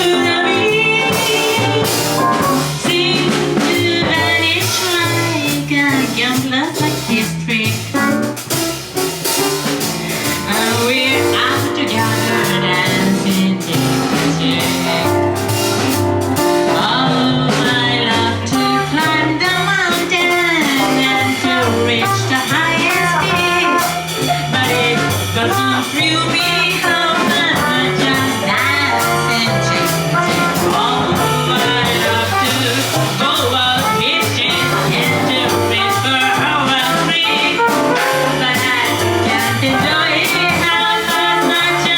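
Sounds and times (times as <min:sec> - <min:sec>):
bending melody line: 0:00.0 - 0:04.6, 0:20.5 - 0:41.9
drum kit: 0:00.0 - 0:41.9
walking bass line: 0:00.0 - 0:41.9.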